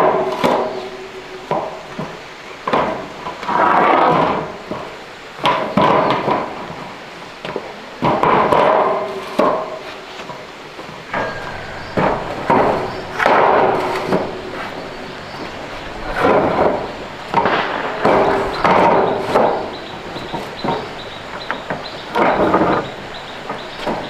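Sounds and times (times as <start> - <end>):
hand tool knocking and scraping: 11.1 - 24.0.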